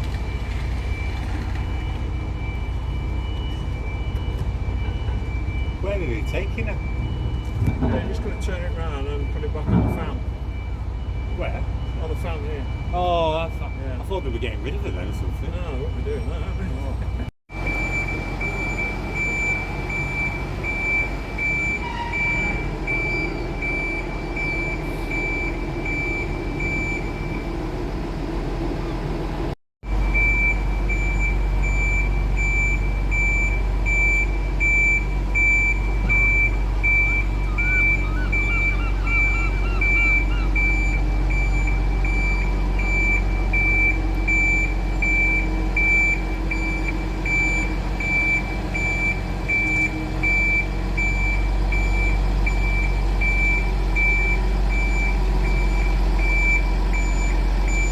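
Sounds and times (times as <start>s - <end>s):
reversing alarm beeping: 0.0s - 27.7s, 29.9s - 57.9s
vehicle humming: 0.0s - 57.9s.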